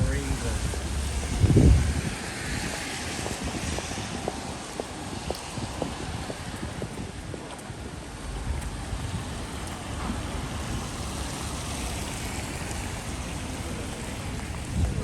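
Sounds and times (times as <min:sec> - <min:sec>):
steady rain: 0:00.0 - 0:15.0
wind gusting on microphone: 0:00.0 - 0:15.0.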